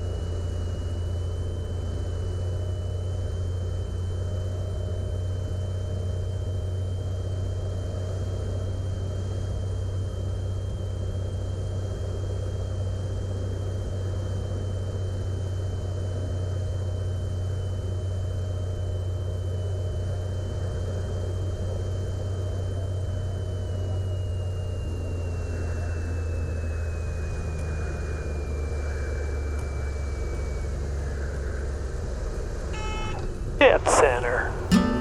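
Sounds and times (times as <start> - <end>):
aircraft engine and propeller drone: 0.0 - 34.7
high whine: 32.8 - 35.0.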